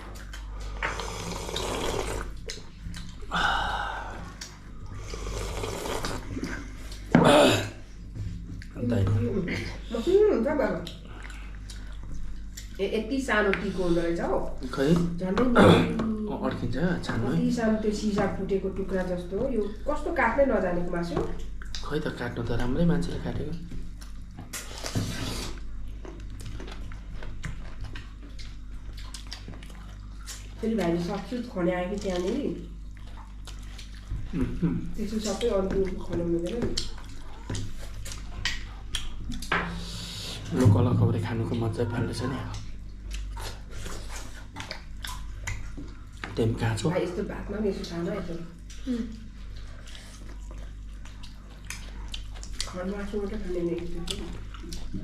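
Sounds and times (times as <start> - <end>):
wet chewing: 0.0 - 3.4, 4.0 - 7.1, 10.6 - 15.3, 20.9 - 22.0, 23.7 - 40.5, 42.2 - 55.0
broth being slurped: 0.0 - 7.0
steady low hum: 0.0 - 55.0.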